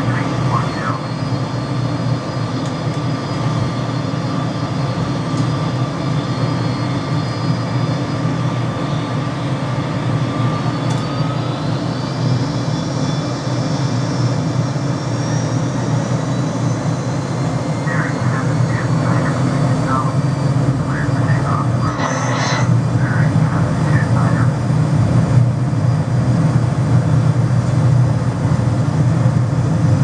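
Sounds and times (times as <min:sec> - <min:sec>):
jet engines rumbling with whine: 0:00.0 - 0:30.0.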